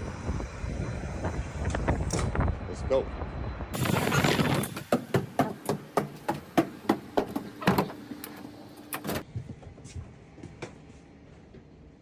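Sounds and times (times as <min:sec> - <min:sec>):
sharp knocks: 0:04.6 - 0:08.0.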